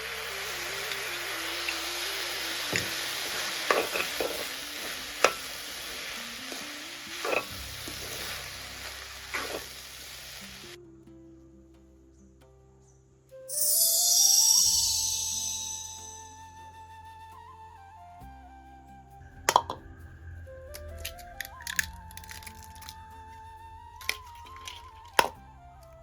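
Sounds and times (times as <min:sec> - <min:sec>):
food sizzling in a pan: 0:00.0 - 0:10.8, 0:13.5 - 0:16.2
soft background music: 0:00.0 - 0:26.0
spoon scraping and tapping a pan: 0:03.7 - 0:04.5, 0:06.5 - 0:07.6.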